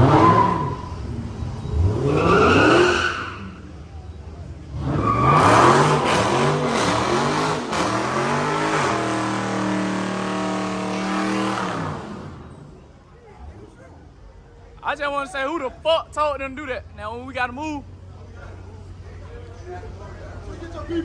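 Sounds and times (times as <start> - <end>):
car engine revving: 0.0 - 3.8, 4.6 - 12.8.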